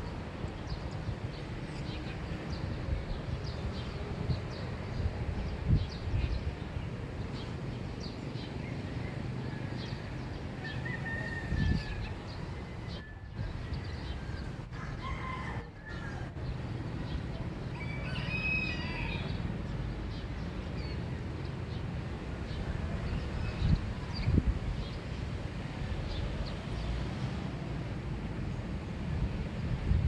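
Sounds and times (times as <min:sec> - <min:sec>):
rooster crowing: 0:10.6 - 0:16.4, 0:17.7 - 0:19.4.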